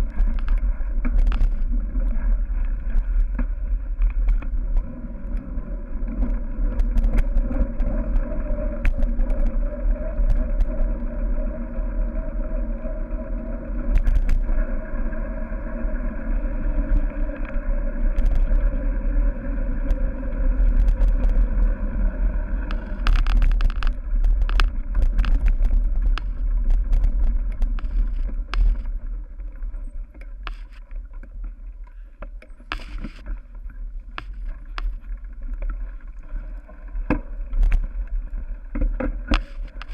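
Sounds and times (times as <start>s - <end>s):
bike clicking and rattling: 22.4s - 29.0s, 38.8s - 39.9s.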